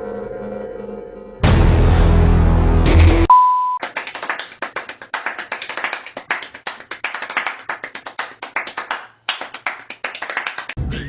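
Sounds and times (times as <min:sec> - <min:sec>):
sharp claps: 0:03.8 - 0:10.8.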